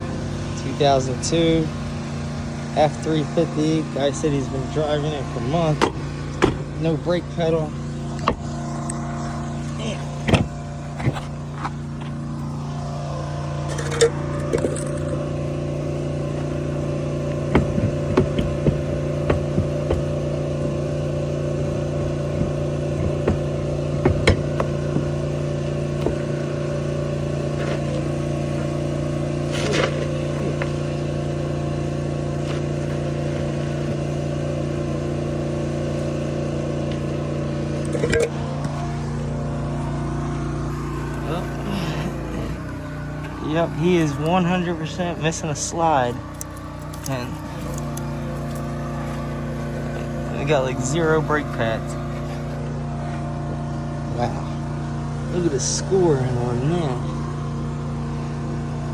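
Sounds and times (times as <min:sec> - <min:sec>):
diesel truck engine idling: 0:00.0 - 0:58.9
clicks and knocks of work: 0:17.3 - 0:20.3, 0:21.9 - 0:25.2.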